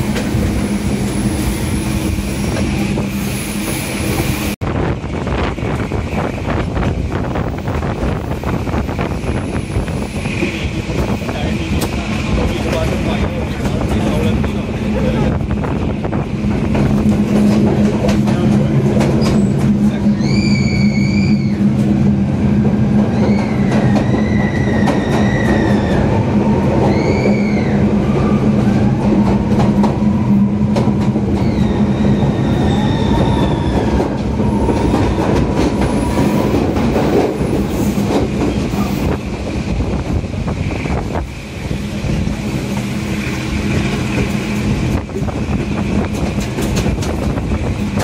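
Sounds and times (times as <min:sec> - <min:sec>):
diesel locomotive rumble: 0:00.0 - 0:48.0
high wheel squeals: 0:19.2 - 0:21.8
wheels clicking over rails: 0:42.6 - 0:48.0.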